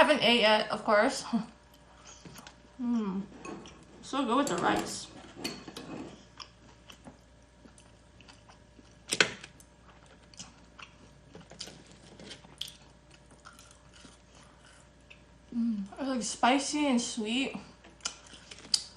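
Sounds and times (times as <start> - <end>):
person chewing crunchy food: 6.1 - 15.4, 17.9 - 18.9.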